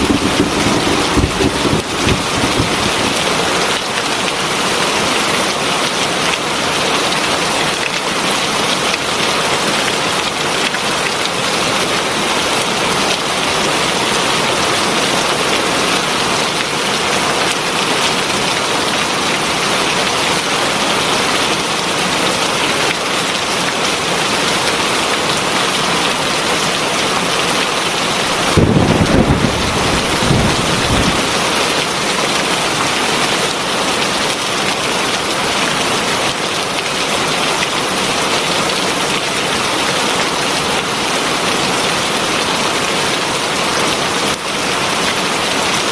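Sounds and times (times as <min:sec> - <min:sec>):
low rumble of thunder: 0:00.0 - 0:03.8, 0:28.3 - 0:31.4
heavy rain: 0:00.0 - 0:45.9.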